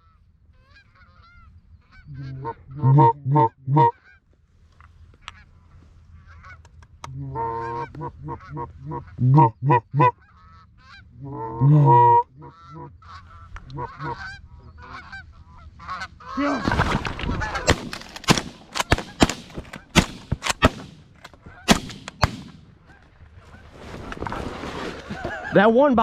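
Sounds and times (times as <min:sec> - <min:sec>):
goose honking: 0:00.0 - 0:04.3, 0:05.2 - 0:23.6
sharp cracks: 0:16.6 - 0:23.0.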